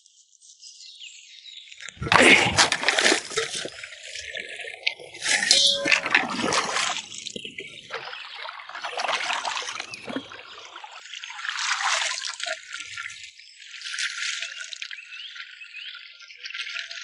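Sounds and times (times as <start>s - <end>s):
water trickling and dripping: 3.7s - 17.0s.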